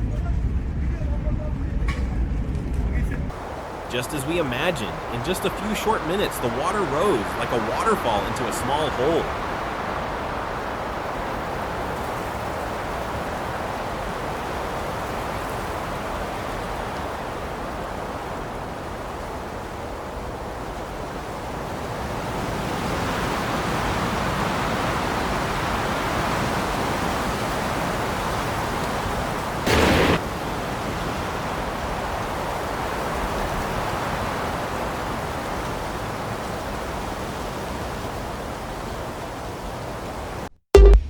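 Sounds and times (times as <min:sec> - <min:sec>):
flowing water rushing: 0:03.3 - 0:20.6.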